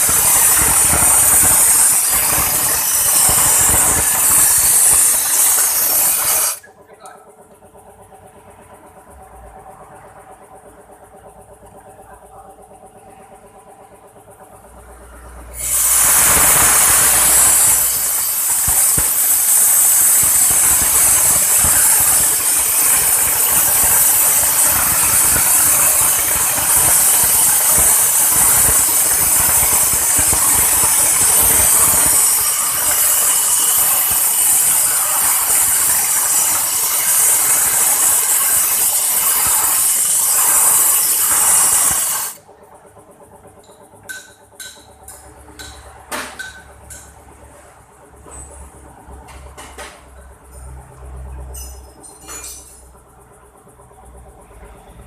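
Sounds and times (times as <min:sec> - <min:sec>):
pressurized jet hissing: 0:00.0 - 0:06.6, 0:15.6 - 0:42.4.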